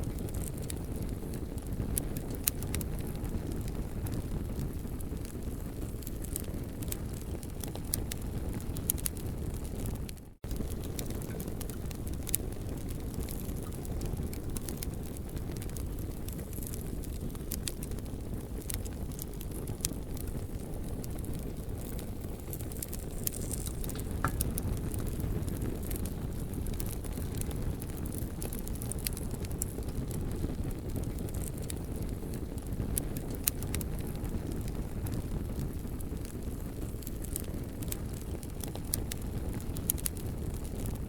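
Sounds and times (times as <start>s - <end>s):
campfire crackling and popping: 0.0s - 41.0s
low fire rumble: 0.0s - 41.0s.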